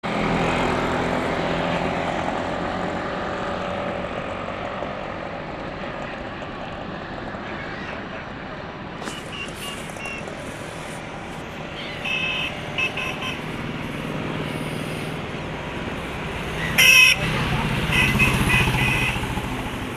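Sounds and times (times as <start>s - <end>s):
traffic noise: 0.0s - 19.9s.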